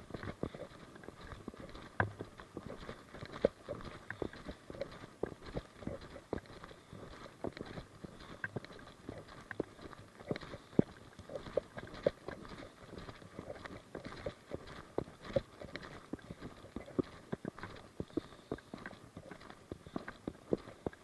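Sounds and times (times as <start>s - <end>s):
footsteps with gear knocking: 0.0s - 21.0s.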